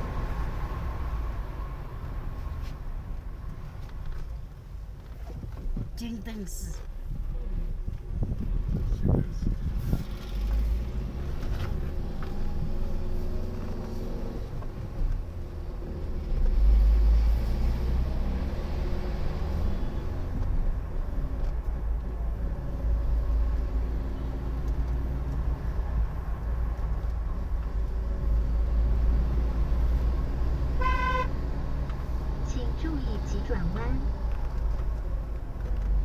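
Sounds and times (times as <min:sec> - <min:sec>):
car engine and road rumble: 0:00.0 - 0:36.0
car horn honk: 0:30.8 - 0:31.4.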